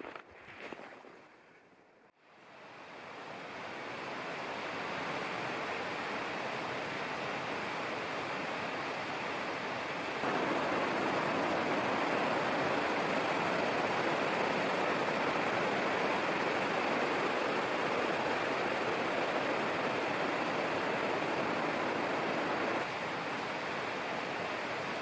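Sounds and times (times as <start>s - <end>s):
flowing water rushing: 10.2s - 22.9s.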